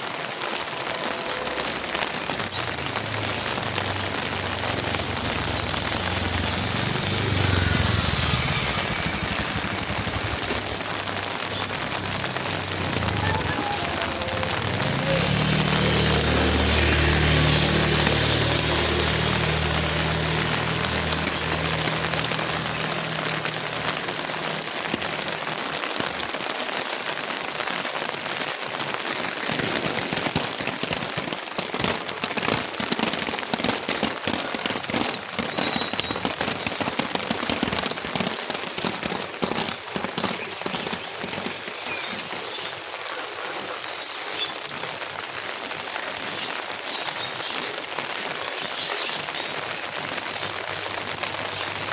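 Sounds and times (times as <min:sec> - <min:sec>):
heavy rain on hard surfaces: 0:00.0 - 0:51.9
low rumble: 0:04.0 - 0:15.2.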